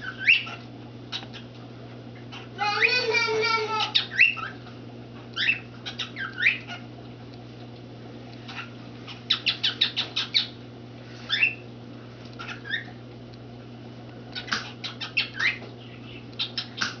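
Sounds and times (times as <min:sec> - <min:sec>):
cockatiel chirping: 0:00.0 - 0:01.4, 0:02.6 - 0:04.6, 0:05.4 - 0:06.8, 0:09.3 - 0:10.6, 0:11.3 - 0:11.6, 0:12.4 - 0:12.9, 0:14.4 - 0:16.9
steady low hum: 0:00.0 - 0:17.0.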